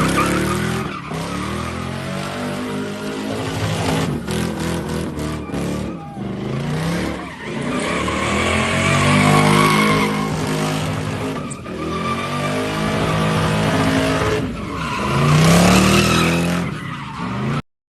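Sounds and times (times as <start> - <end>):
car engine revving hard: 0.0 - 17.6
tyres squealing: 5.1 - 17.6.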